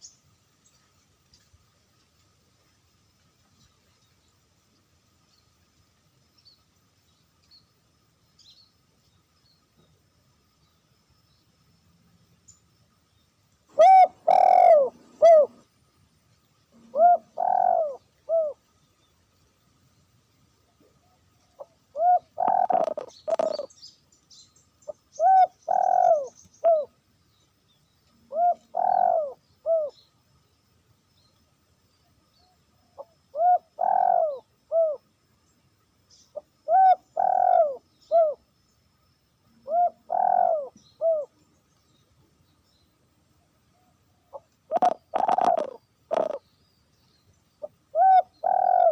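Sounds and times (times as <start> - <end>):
dove cooing: 13.7 - 15.6, 16.8 - 18.6, 21.5 - 23.7, 25.2 - 26.9, 28.3 - 30.0, 33.0 - 35.0, 36.6 - 38.4, 39.6 - 41.3, 44.3 - 46.4, 47.6 - 48.9.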